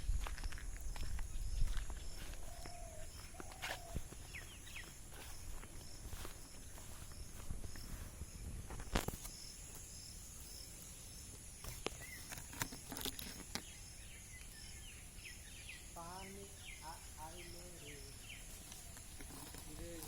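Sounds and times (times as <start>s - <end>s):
footsteps: 0.0s - 9.9s
high insect drone: 0.0s - 20.0s
insect chirping: 0.0s - 20.0s.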